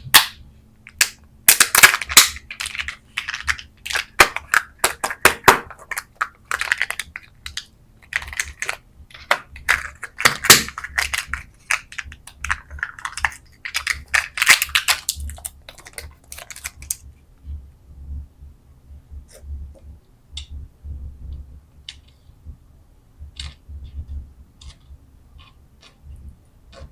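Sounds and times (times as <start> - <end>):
plastic packaging crinkling: 0.9 - 17.0.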